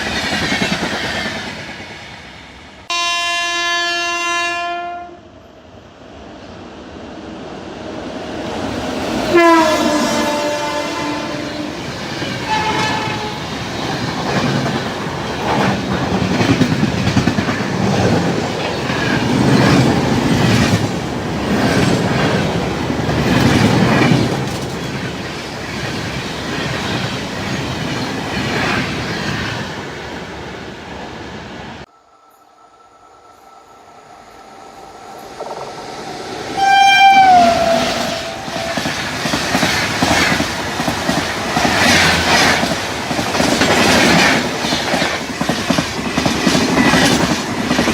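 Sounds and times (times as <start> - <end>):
train horn: 2.9 - 5.3, 9.2 - 13.5, 36.5 - 39.0
train wheels clattering on rails: 10.1 - 29.6, 37.6 - 47.9.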